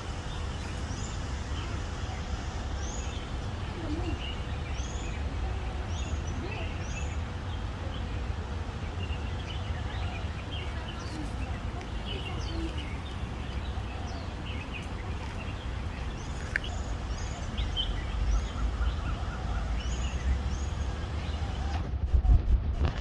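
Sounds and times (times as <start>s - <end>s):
birds chirping and whistling: 10.5s - 21.8s.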